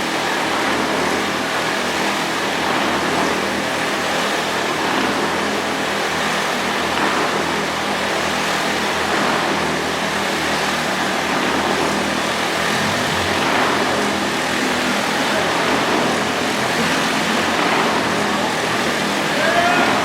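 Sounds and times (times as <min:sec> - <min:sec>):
motorcycle engine at high revs: 0:00.0 - 0:20.0.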